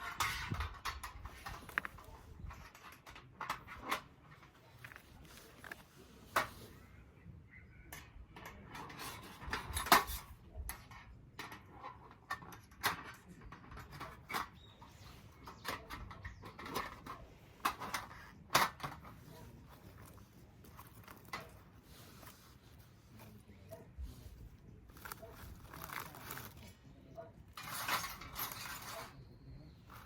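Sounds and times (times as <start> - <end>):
small objects clicking and knocking: 8.0 - 22.5, 24.8 - 26.8, 27.5 - 29.2.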